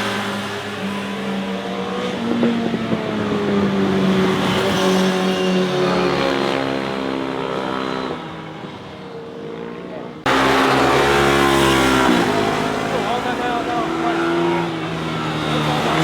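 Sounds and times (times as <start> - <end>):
loud engine: 10.2 - 16.0
motorcycle engine passing by: 10.3 - 16.0.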